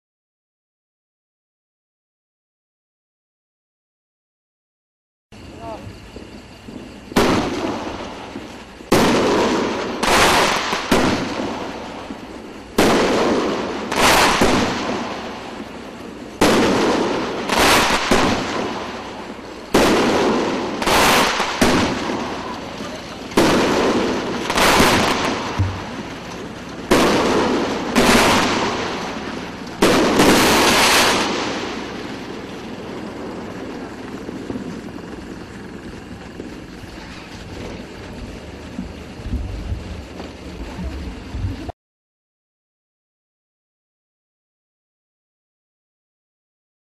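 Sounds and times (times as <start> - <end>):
firework shells bursting: 5.4 - 41.7
firework launch thumps: 5.7 - 41.7.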